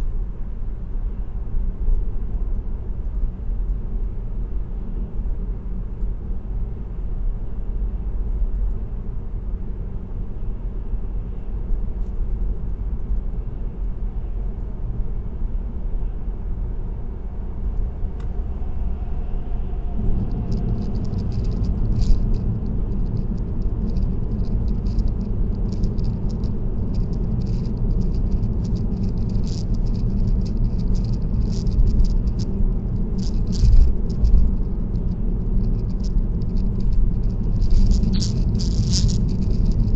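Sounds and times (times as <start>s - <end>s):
road and tyre rumble: 0.0s - 39.9s
rattle of small clicks: 20.0s - 39.9s.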